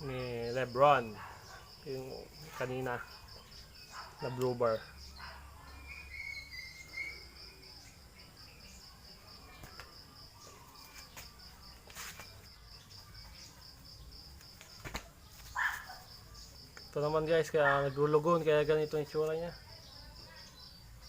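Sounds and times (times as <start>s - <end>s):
insect trilling: 0.0s - 11.8s
high chirp: 5.0s - 8.8s.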